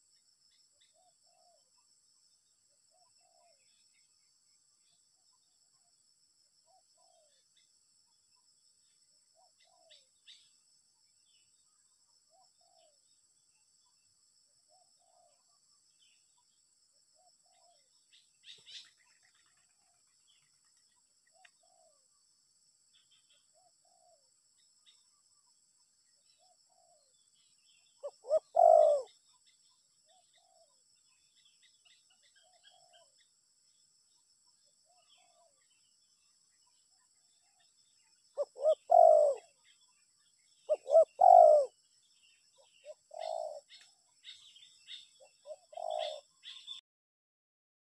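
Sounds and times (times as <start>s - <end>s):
small birds chirping: 0.0s - 46.8s
dove cooing: 2.9s - 3.7s, 12.3s - 13.0s, 14.7s - 15.5s, 27.8s - 29.2s, 32.4s - 33.1s, 34.9s - 35.6s, 38.3s - 39.8s, 40.6s - 41.8s, 42.6s - 46.8s.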